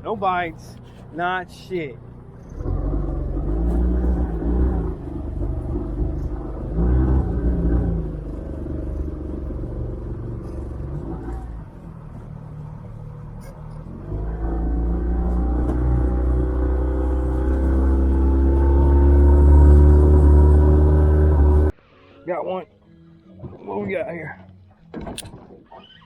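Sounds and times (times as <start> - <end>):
outboard motor running: 2.0 - 21.7.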